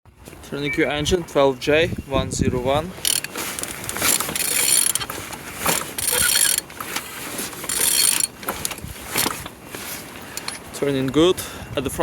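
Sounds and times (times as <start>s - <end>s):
engine turned over by hand: 3.0s - 11.2s
ratchet wrench clicking: 6.0s - 6.6s, 7.7s - 8.3s.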